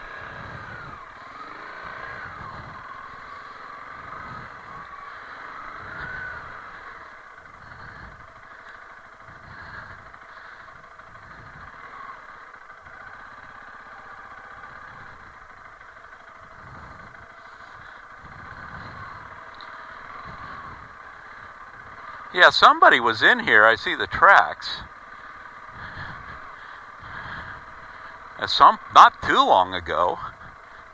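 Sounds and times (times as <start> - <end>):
motorcycle engine running at low revs: 0.0 - 30.9.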